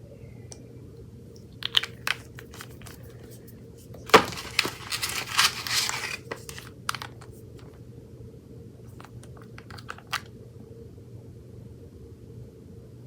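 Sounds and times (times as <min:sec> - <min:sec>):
crinkling rustle: 0:01.4 - 0:07.8, 0:08.9 - 0:10.3
sharp clicks and crackles: 0:01.6 - 0:03.2, 0:04.1 - 0:07.7, 0:08.9 - 0:10.3.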